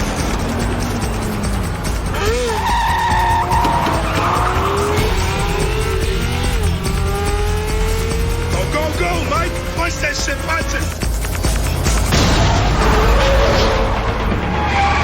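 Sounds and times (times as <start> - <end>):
car tyres squealing: 0.0 - 15.0
engines revving: 0.0 - 15.0
music with low rumble: 0.0 - 15.0.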